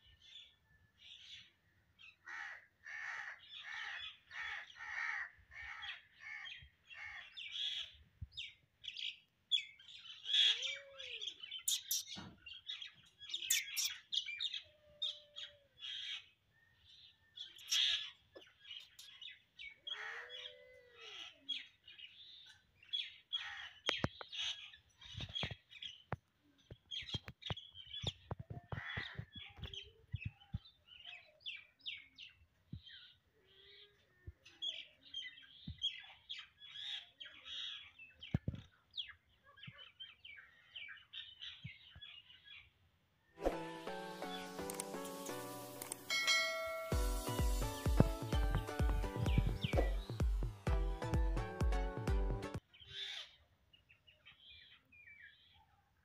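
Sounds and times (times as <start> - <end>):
birds calling and chirping: 0.0 - 43.4, 44.2 - 50.7, 52.5 - 55.9
sharp clicks: 44.6 - 45.2, 45.8 - 46.1.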